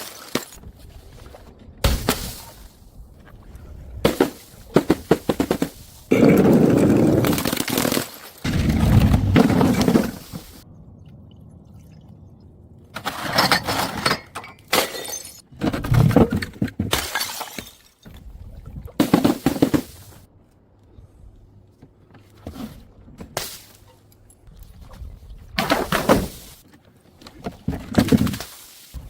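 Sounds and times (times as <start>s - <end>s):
glass shards scattering: 13.0s - 15.4s, 16.9s - 17.9s
glass bottles smashing: 13.2s - 15.4s, 16.9s - 17.9s.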